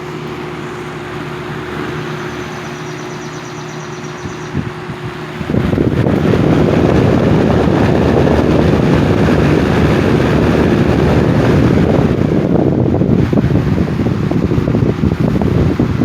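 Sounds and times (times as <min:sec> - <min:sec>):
box fan wind noise: 0:00.0 - 0:16.0.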